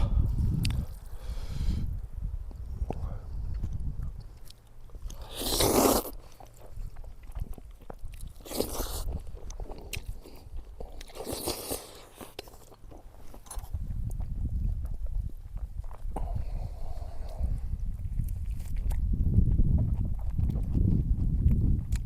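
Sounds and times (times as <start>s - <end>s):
person chewing food: 0.3s - 1.4s, 2.5s - 22.0s.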